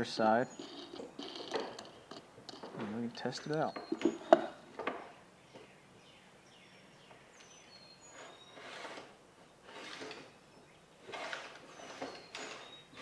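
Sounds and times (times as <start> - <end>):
wooden block scraping along track: 0.0 - 3.0, 8.1 - 10.4, 11.0 - 13.0
faint high squeaks: 11.1 - 13.0.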